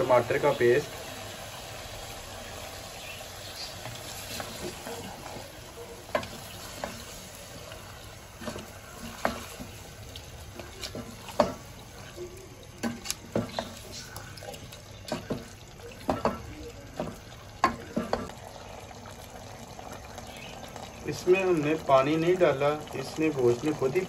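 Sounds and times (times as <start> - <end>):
meat and onion sizzling in pot: 0.0 - 24.0
wooden spoon knocking and scraping pot: 6.0 - 9.9, 10.5 - 12.2, 12.8 - 14.1, 15.0 - 18.3.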